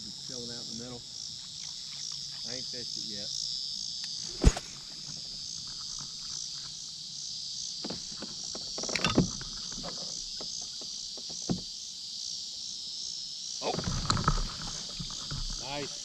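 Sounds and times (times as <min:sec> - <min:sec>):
insects chorus: 0:00.0 - 0:16.0
short knocks and clatters: 0:07.8 - 0:11.7, 0:13.7 - 0:15.9.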